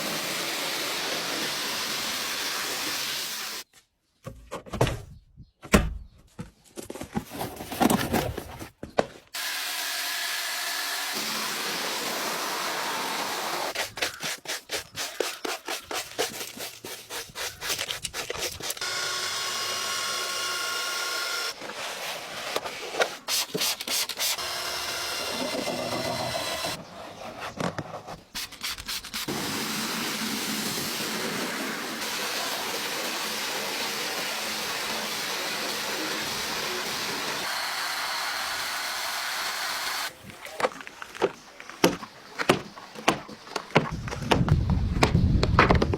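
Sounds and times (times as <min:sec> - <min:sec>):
car wash rushing hiss: 0:00.0 - 0:03.6.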